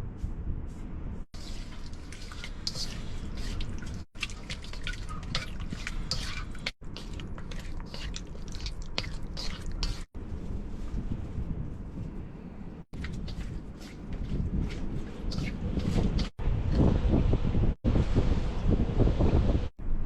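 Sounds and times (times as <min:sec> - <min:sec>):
meat mixed by hand in sauce: 0:01.4 - 0:11.1, 0:12.9 - 0:16.4.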